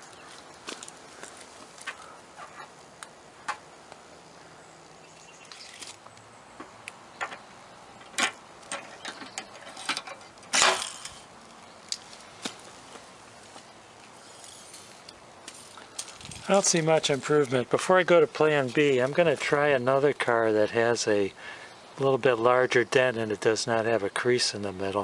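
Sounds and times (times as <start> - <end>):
clicks and knocks of tools: 8.0 - 11.3.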